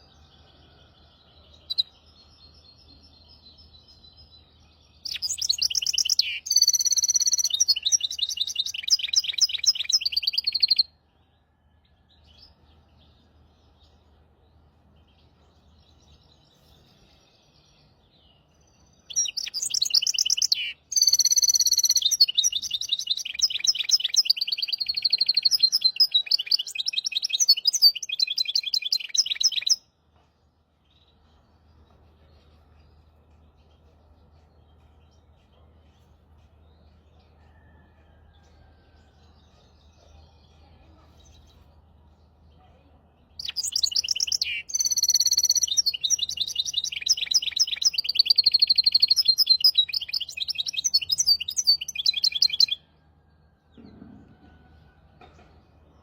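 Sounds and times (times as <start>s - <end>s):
soft bird chirps: 0.0s - 10.9s, 11.5s - 52.8s
finch singing trills: 19.1s - 29.8s, 43.4s - 52.8s.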